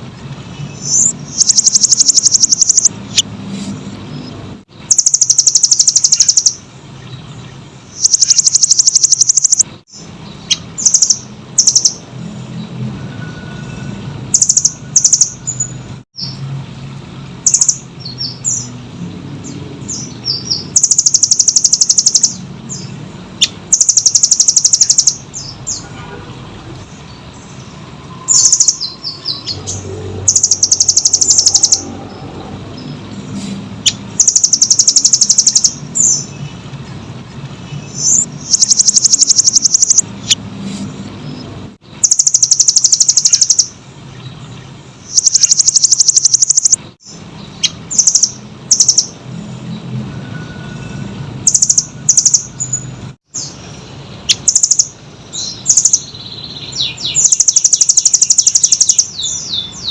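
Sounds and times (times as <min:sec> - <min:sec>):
bird chirps: 0:00.5 - 0:16.4, 0:17.4 - 0:18.8, 0:19.4 - 0:25.9, 0:26.8 - 0:40.4, 0:41.2 - 0:59.9
bird trilling: 0:00.7 - 0:03.3, 0:04.8 - 0:06.7, 0:07.9 - 0:12.1, 0:14.3 - 0:16.4, 0:17.4 - 0:18.7, 0:19.9 - 0:25.8, 0:28.2 - 0:32.2, 0:33.8 - 0:36.4, 0:37.9 - 0:40.4, 0:41.9 - 0:43.8, 0:45.0 - 0:49.2, 0:51.4 - 0:53.6, 0:54.2 - 0:59.9.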